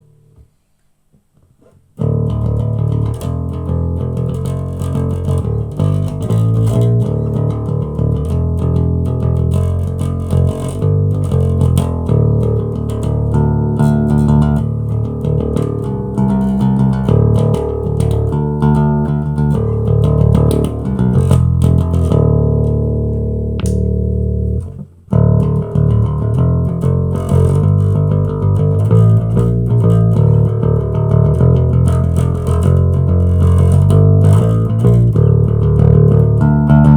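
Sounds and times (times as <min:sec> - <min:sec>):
electric bass guitar plucked: 0:02.0 - 0:36.9.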